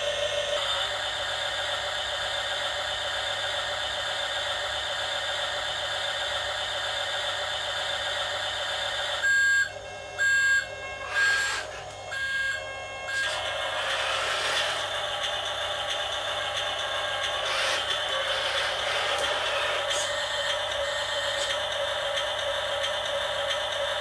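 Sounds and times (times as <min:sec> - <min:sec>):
toy vehicle electric motor whining: 0:10.4 - 0:24.0.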